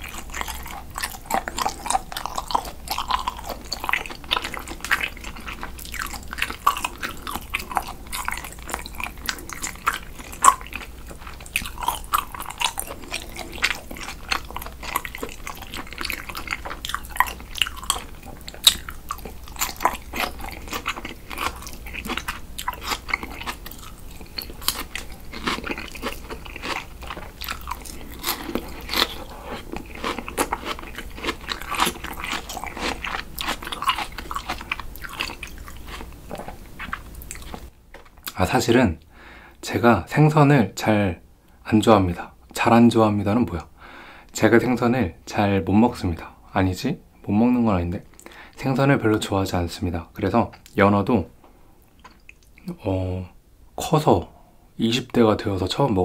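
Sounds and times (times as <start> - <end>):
chewing mouth clicks and smacks: 0.0 - 38.4, 51.9 - 52.8.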